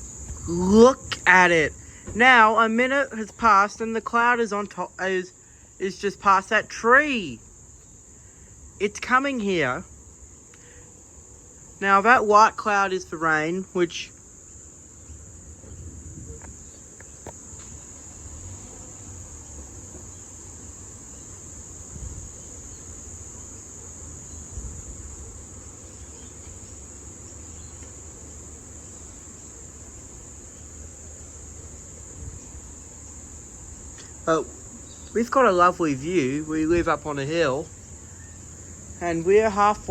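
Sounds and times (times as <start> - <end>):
insects chorus droning: 0.0 - 39.9
wind rumble on microphone: 15.4 - 17.8, 21.8 - 22.5, 24.5 - 25.3.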